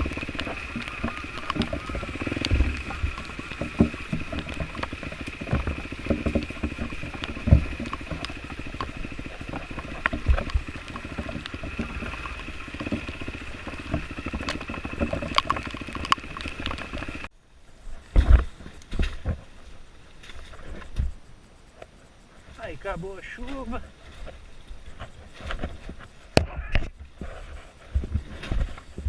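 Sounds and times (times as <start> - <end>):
knocks and thumps from riding: 0.0 - 17.3, 18.0 - 21.2, 23.5 - 29.0
dirt bike engine running: 0.0 - 17.4
steady high whine: 0.0 - 27.8.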